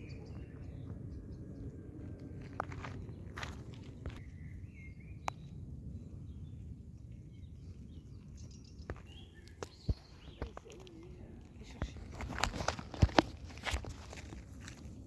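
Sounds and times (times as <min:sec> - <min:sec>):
bird warbling chirp: 0:00.0 - 0:01.6
wind rumble: 0:00.0 - 0:15.0.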